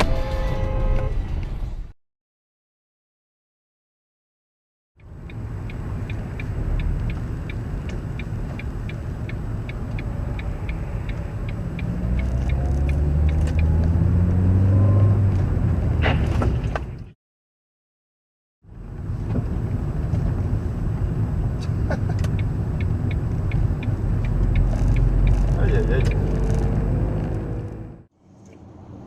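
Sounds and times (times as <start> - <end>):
light ticking: 5.0 - 13.7, 22.2 - 26.1
car engine driving: 5.0 - 17.2, 18.6 - 29.0.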